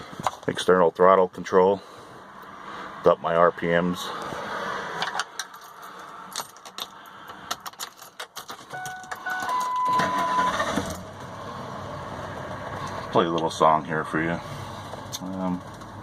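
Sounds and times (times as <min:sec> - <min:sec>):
electronic beeps: 0:08.8 - 0:10.6.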